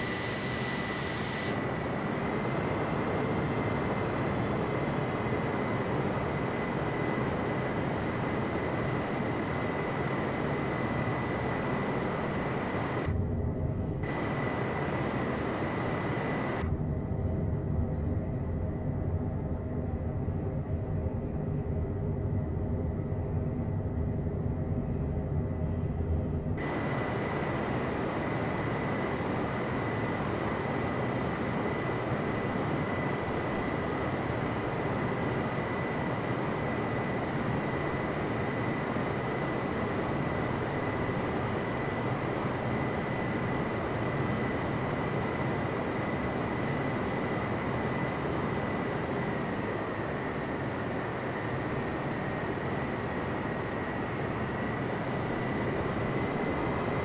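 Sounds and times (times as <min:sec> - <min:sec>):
jet engines whining: 0:00.0 - 0:13.2, 0:13.9 - 0:16.7, 0:26.6 - 0:57.0.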